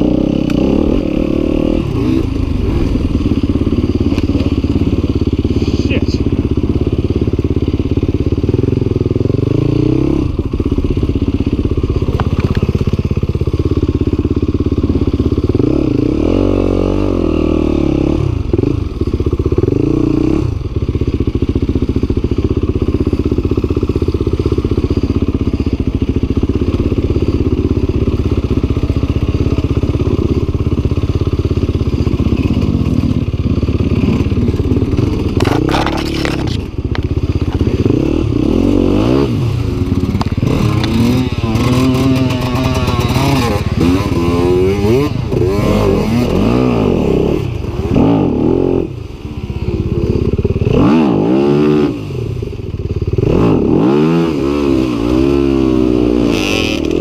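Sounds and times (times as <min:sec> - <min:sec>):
dirt bike engine revving: 0:00.0 - 0:20.8, 0:22.0 - 0:57.0.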